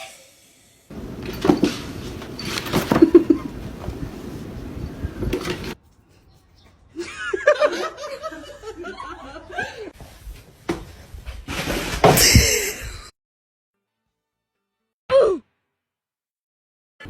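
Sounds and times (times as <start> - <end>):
person laughing: 2.9 - 3.6, 12.2 - 13.1.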